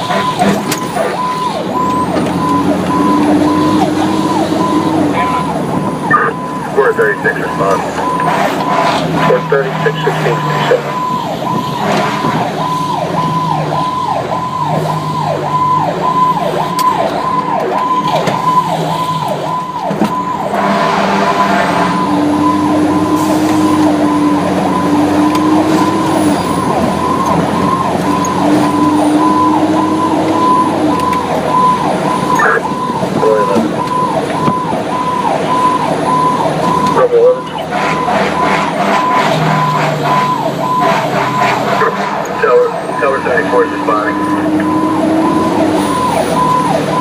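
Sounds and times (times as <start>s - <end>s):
siren steady low tones: 0.0s - 47.0s
siren yelping: 0.0s - 47.0s
dense horn blast: 11.8s - 12.6s, 20.5s - 24.1s, 37.7s - 42.7s.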